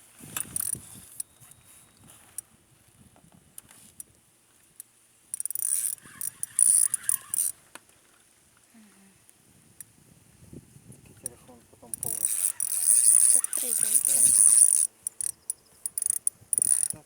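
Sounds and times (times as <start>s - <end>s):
fishing reel clicking: 0.4s - 1.4s, 4.8s - 7.6s, 11.9s - 17.0s.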